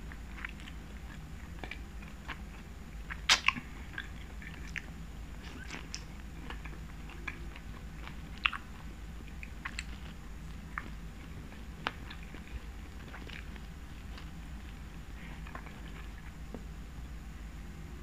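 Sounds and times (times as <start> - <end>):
chewing and wet mouth sounds: 0.0 - 16.7
soft mouth clicks and smacks: 0.4 - 14.8.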